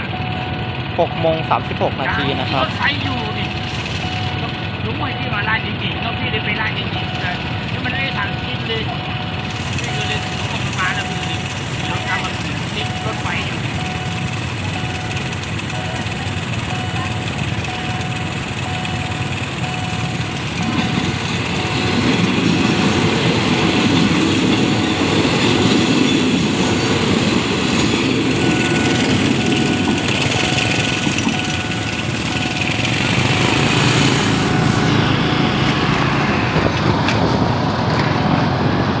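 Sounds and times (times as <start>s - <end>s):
train wheels rushing on rails: 0.0s - 39.0s.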